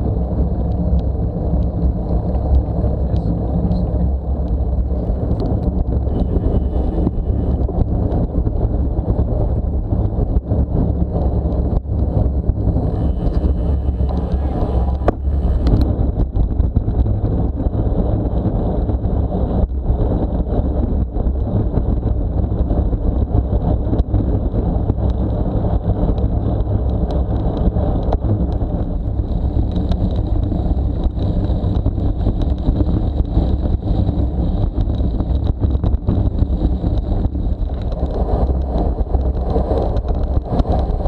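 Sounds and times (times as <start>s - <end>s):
bicycle tyre and road rumble: 0.0s - 41.0s
wind buffeting microphone: 0.0s - 41.0s
small clicks and rattles: 19.5s - 41.0s.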